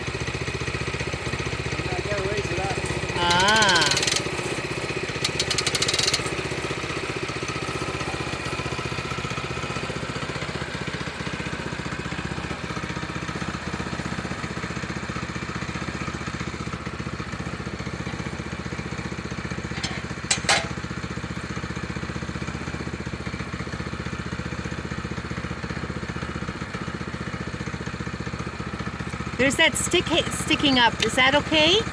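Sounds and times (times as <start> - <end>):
small gas engine running: 0.0 - 31.9
rattle: 2.8 - 6.6
sharp clicks: 3.3 - 4.5, 5.2 - 6.3.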